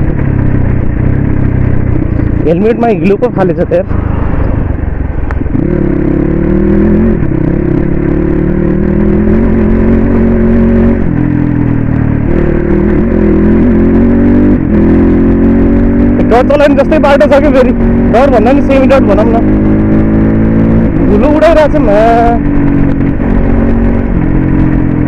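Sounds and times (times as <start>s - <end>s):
dirt bike engine revving: 5.4s - 25.0s.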